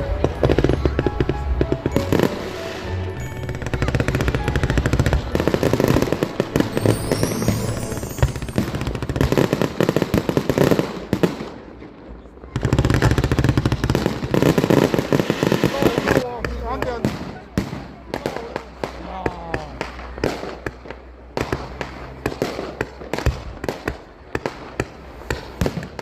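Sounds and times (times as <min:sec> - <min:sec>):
music: 0:00.0 - 0:10.3, 0:20.2 - 0:25.5
fireworks bursting and crackling: 0:00.0 - 0:11.8, 0:12.5 - 0:26.0
firework whistle rising: 0:06.5 - 0:09.4.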